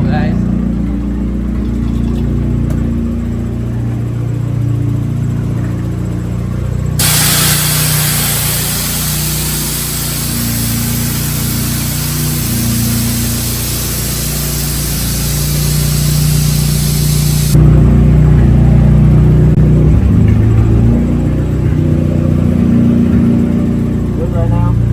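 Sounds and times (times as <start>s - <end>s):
truck engine idling: 0.0s - 24.9s
loud steady hiss: 7.0s - 17.6s.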